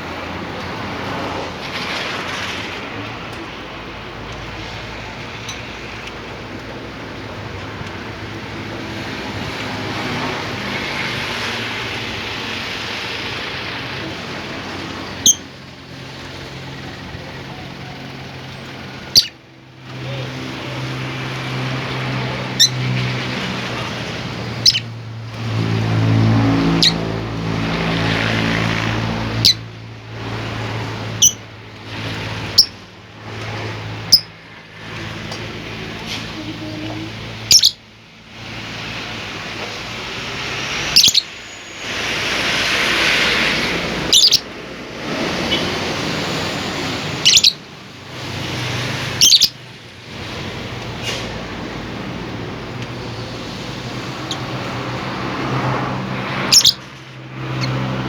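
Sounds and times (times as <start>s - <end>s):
bird chirping sharply: 15.0s - 15.6s, 19.0s - 19.4s, 24.6s - 24.9s, 31.2s - 31.4s, 37.4s - 37.8s, 40.7s - 42.1s, 44.0s - 44.5s, 47.1s - 47.6s, 49.2s - 49.6s, 56.4s - 56.9s.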